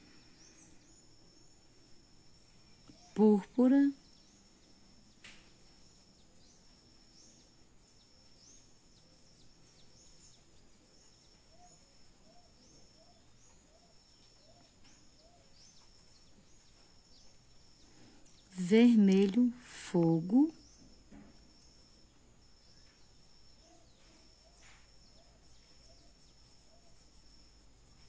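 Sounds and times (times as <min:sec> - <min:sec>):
faint high bird chirps: 0:02.4 - 0:28.0.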